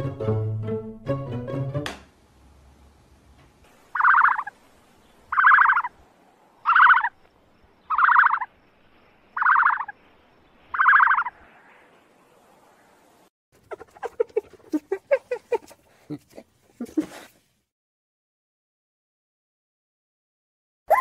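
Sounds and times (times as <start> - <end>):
buzzy rattling animal croak: 3.9 - 4.5, 5.3 - 5.9, 6.6 - 7.1, 7.9 - 8.5, 9.4 - 9.9, 10.7 - 11.3.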